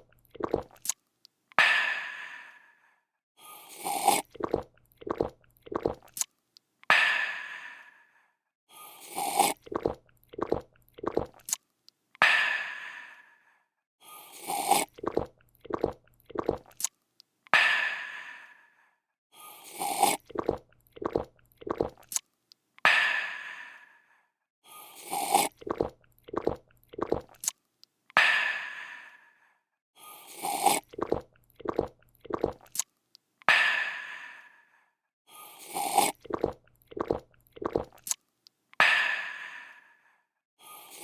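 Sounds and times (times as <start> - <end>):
person slurping and gulping: 0.0 - 1.0, 3.4 - 6.3, 8.8 - 11.6, 14.2 - 17.0, 19.4 - 22.3, 24.8 - 27.6, 30.0 - 32.9, 35.4 - 38.2.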